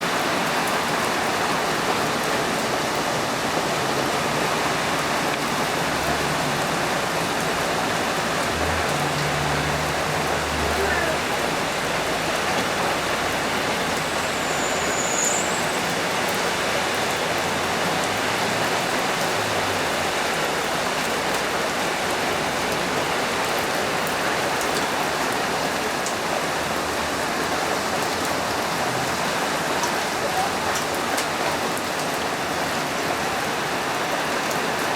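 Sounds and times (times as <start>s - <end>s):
steady rain: 0.0s - 34.9s
high whistle: 14.1s - 15.8s.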